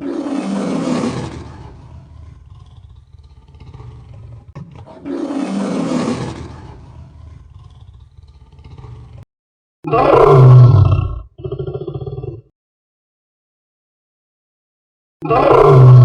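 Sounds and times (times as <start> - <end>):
animal roars: 0.0 - 9.2, 9.9 - 12.5, 15.2 - 16.0.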